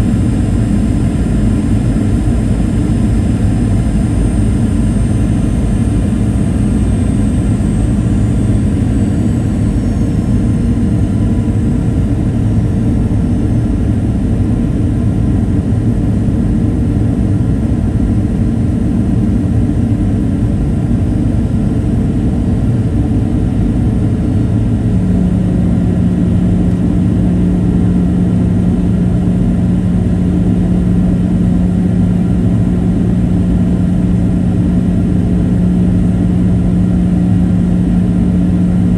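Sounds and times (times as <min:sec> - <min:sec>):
aircraft cabin airflow and engine noise: 0:00.0 - 0:38.9
strong low hum: 0:00.0 - 0:38.9.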